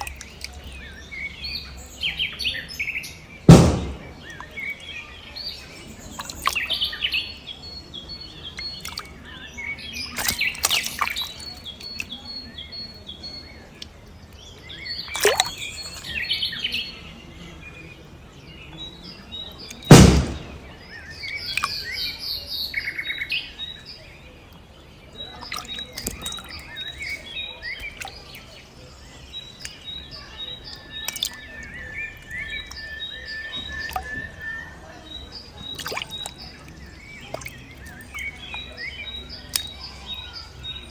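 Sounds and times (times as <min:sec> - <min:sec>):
small birds chirping and trilling: 0:00.0 - 0:03.4, 0:04.2 - 0:19.9, 0:20.6 - 0:40.9
sharp loud thump: 0:03.5 - 0:04.3, 0:19.9 - 0:20.8.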